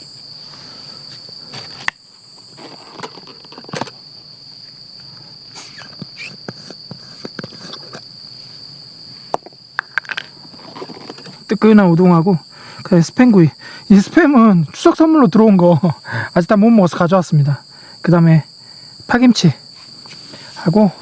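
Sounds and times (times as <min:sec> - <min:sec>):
insects chirring: 0:00.0 - 0:21.0
handling clicks and knocks: 0:02.6 - 0:04.0, 0:09.3 - 0:11.4.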